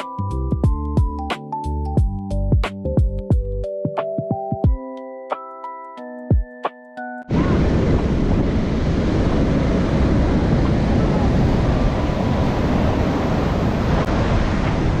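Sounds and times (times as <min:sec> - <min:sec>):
surf breaking: 0:07.3 - 0:15.0
wind buffeting microphone: 0:07.3 - 0:15.0.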